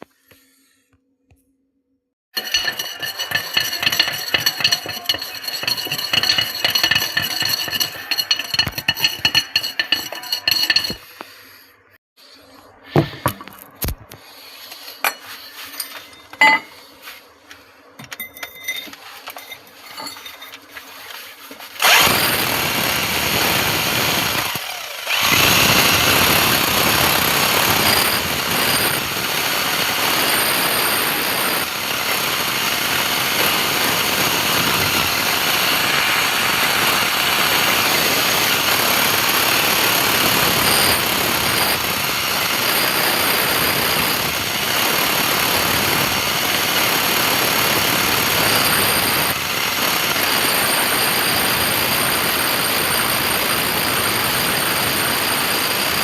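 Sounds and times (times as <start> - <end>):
power tool running: 2.4 - 11.2, 21.8 - 56.0.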